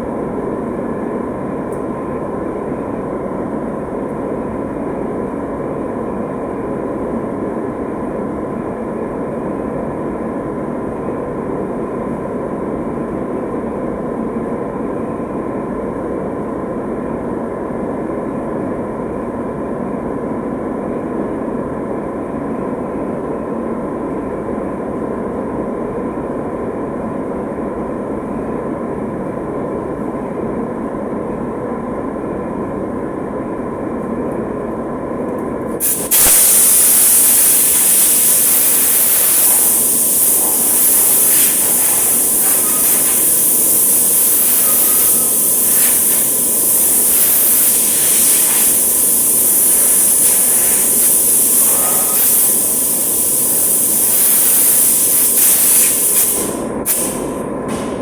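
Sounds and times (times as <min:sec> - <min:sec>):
machine hum with thin whine: 0:26.8 - 0:58.0
paint spray gun hissing: 0:35.8 - 0:58.0.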